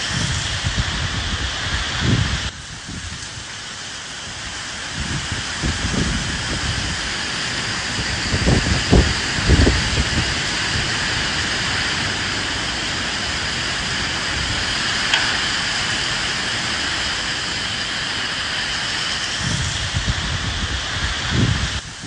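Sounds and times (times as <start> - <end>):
rain with wind: 0.0 - 22.0
low rumbles: 4.9 - 22.0.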